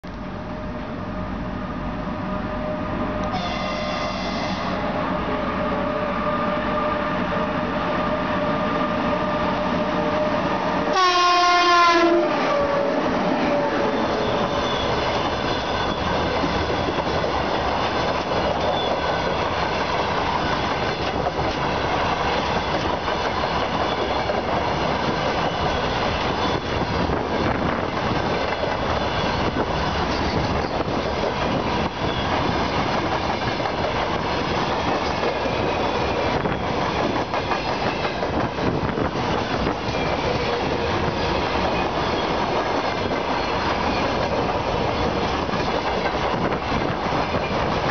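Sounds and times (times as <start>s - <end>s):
train rushing past: 0.2s - 47.9s
loud train horn blast: 2.4s - 14.9s
locomotive whistle tone: 2.4s - 16.1s.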